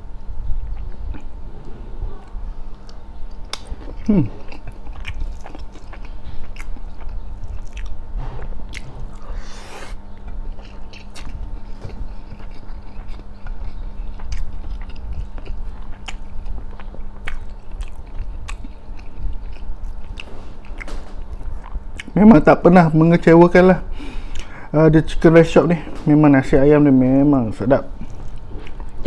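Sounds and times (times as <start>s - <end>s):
faint hum: 0.0s - 29.0s
close chewing: 2.2s - 8.0s, 10.1s - 22.2s.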